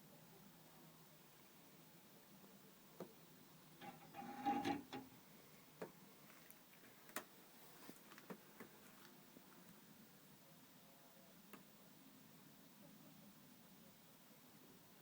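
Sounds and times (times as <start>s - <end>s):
metallic clatter: 3.8s - 5.1s.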